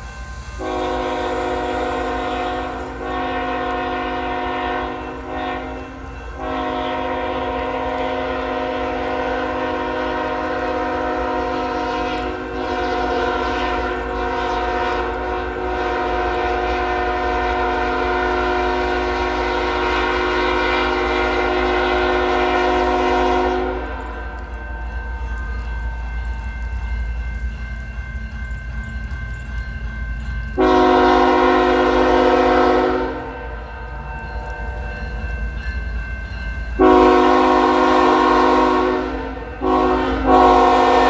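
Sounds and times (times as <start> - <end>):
train rumble: 0.0 - 41.0
locomotive air horn: 0.6 - 24.2, 30.6 - 33.4, 36.8 - 41.0.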